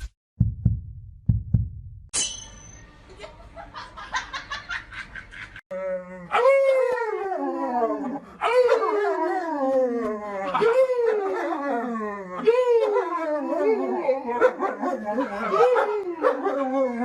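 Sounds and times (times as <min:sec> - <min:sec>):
dog howling: 0:05.8 - 0:17.0.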